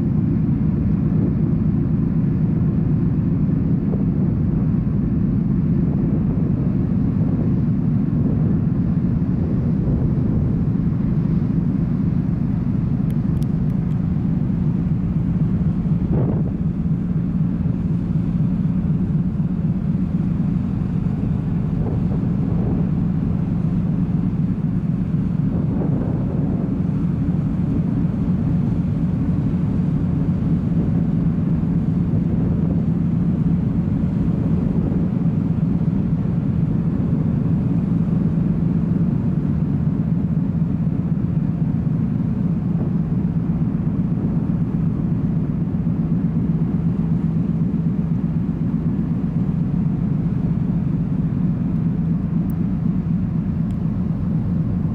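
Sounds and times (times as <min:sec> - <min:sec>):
ship engines droning: 0:00.0 - 0:54.9.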